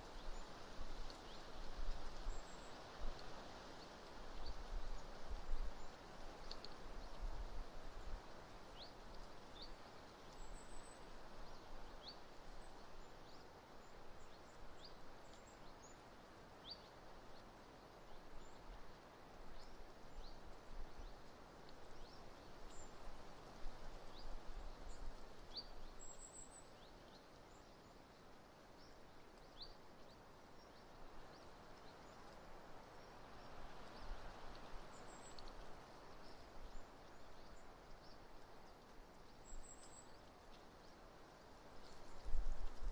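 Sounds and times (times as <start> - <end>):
small birds chirping: 33.0 - 41.1.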